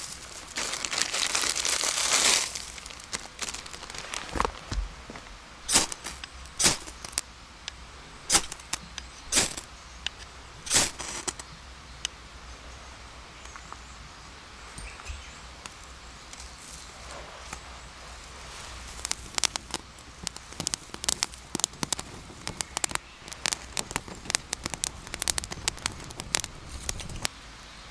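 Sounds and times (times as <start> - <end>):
wood cracking and snapping in fire: 0.0 - 7.3, 8.3 - 11.5, 15.6 - 27.3.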